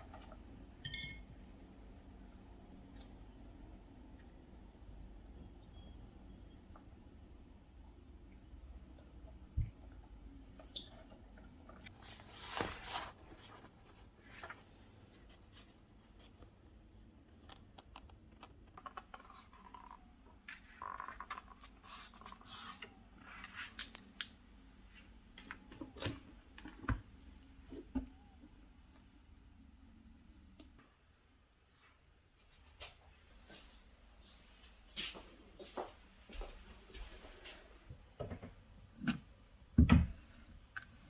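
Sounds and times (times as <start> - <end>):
rustling scrapes: 12.1 - 15.8.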